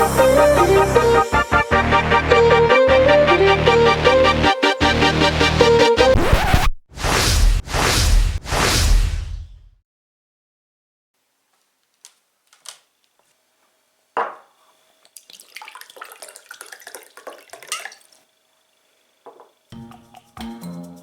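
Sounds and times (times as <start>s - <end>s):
water dripping: 15.0s - 18.2s
water trickling: 15.1s - 18.3s
water splashing: 15.2s - 18.2s.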